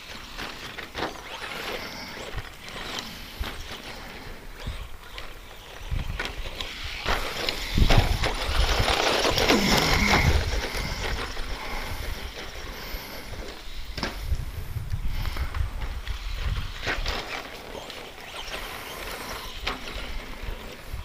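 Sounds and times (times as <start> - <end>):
tyres scrabbling over dirt: 0.0 - 14.4, 15.2 - 21.0
electric motor whining: 0.0 - 21.0.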